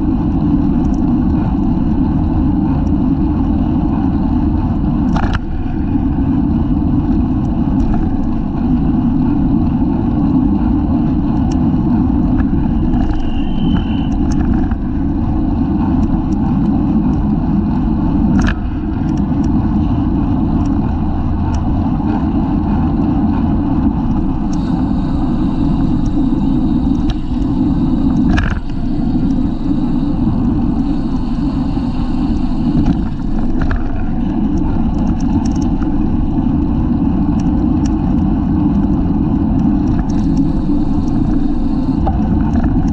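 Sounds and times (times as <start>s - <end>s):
road and tyre noise: 0.0s - 42.9s
wind rush on microphone: 0.0s - 42.9s
sharp clicks and knocks: 5.0s - 5.7s, 18.2s - 19.9s, 23.9s - 42.9s.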